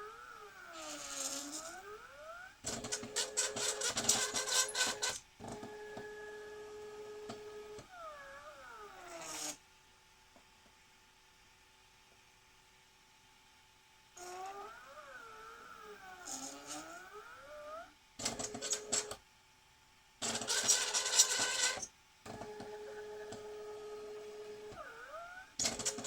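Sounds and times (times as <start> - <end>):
robot arm motors whining: 0.0 - 6.6, 7.4 - 9.6, 14.2 - 19.1, 20.2 - 26.0.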